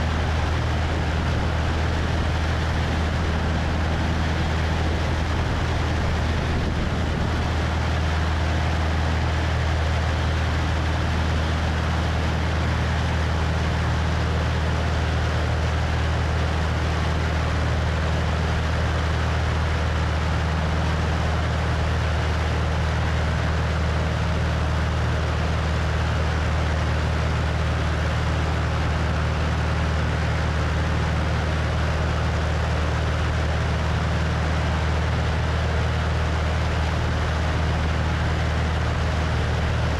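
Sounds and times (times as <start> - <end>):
wind rushing over microphone: 0.0 - 8.2
propeller plane engine droning: 0.0 - 39.9.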